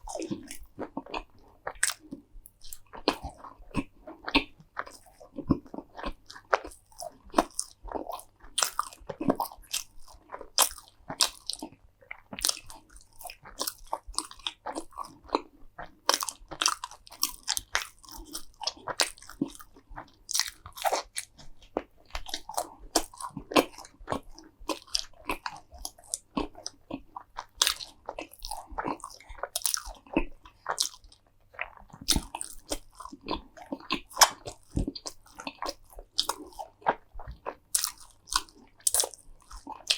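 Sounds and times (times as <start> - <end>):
crunchy food chewing: 0.0 - 39.9.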